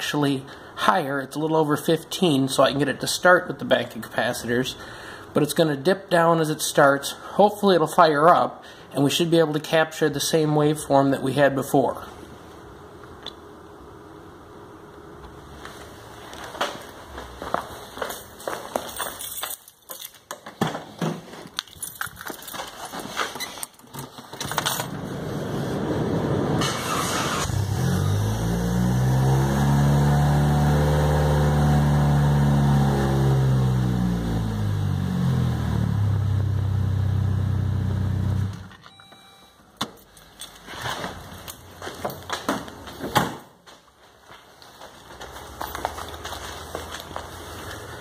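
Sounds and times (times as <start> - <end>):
car door and keys clicking: 21.6 - 22.9
starter motor cranking: 26.6 - 28.0.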